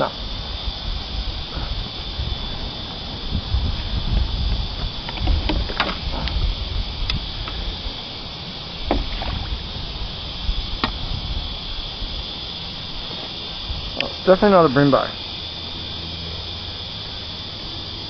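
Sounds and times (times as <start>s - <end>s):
low rumble: 0.0s - 13.0s
high insect drone: 0.0s - 18.0s
fishing gear knocking on plastic kayak: 8.9s - 9.5s.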